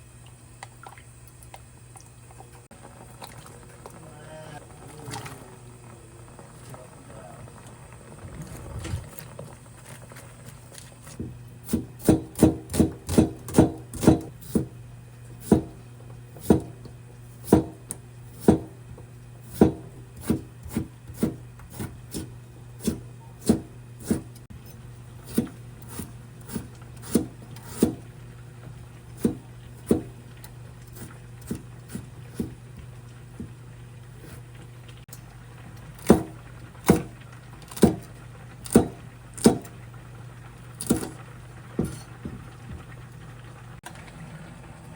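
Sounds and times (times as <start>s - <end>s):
knife chopping on wooden board: 11.2s - 14.7s, 15.4s - 15.8s, 16.4s - 16.8s, 17.4s - 18.7s, 19.5s - 24.3s, 25.2s - 28.0s, 29.2s - 30.1s, 31.0s - 32.6s, 37.7s - 39.7s, 40.8s - 41.1s.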